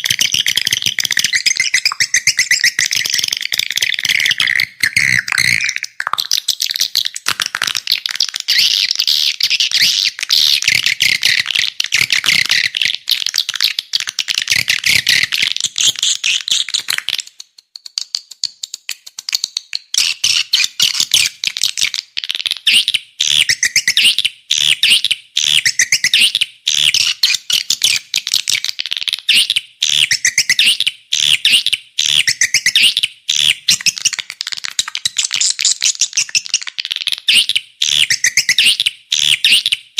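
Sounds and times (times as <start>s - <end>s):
swiftlets twittering: 0.8s - 6.0s.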